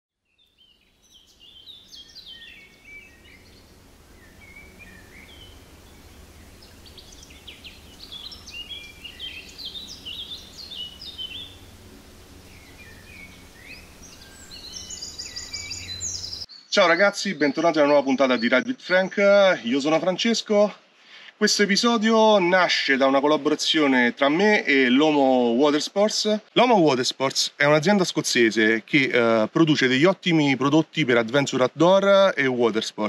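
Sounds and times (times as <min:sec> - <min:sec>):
birds chirping and trilling: 0:00.2 - 0:19.8
low steady hum: 0:00.6 - 0:16.5.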